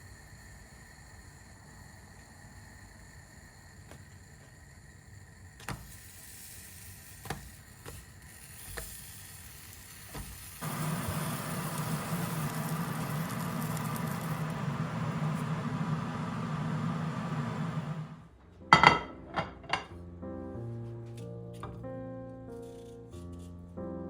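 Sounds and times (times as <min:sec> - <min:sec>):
kitchen appliance motor whirring: 0:06.6 - 0:18.3
kitchen handling clicks and knocks: 0:18.8 - 0:19.9.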